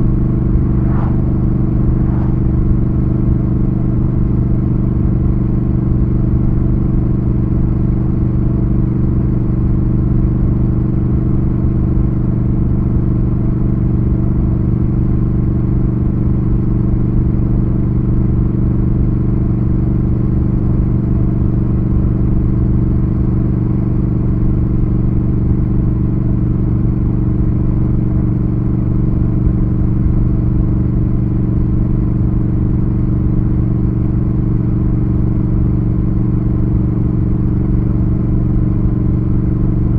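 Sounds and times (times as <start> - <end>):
motorcycle engine at steady revs: 3.0 - 39.9.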